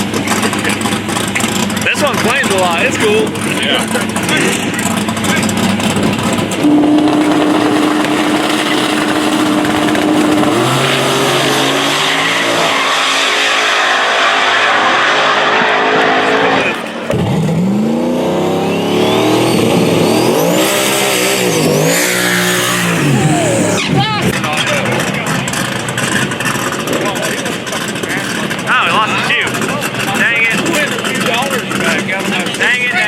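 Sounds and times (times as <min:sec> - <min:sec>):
race car engine accelerating: 0:00.0 - 0:33.0
high whine gliding upward: 0:05.5 - 0:24.8.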